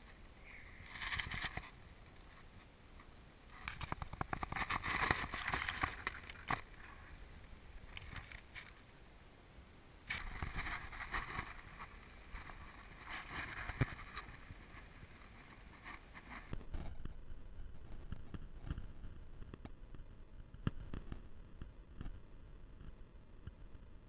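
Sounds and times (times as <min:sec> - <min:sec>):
rock and gravel crunching: 0:03.5 - 0:08.9, 0:10.1 - 0:17.1.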